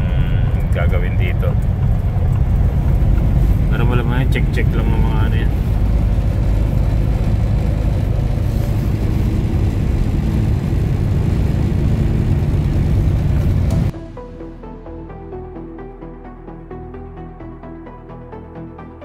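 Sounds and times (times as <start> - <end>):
road noise inside cab: 0.0 - 13.9
truck engine drone: 0.0 - 18.5.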